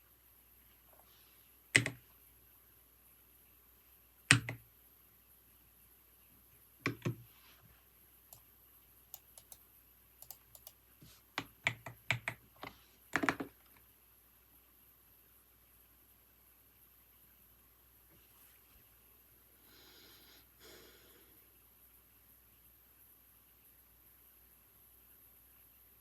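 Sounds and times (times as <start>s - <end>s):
computer keyboard typing: 1.7s - 2.0s, 4.3s - 4.6s, 6.8s - 7.2s, 9.1s - 9.6s, 10.2s - 10.8s, 11.4s - 13.6s.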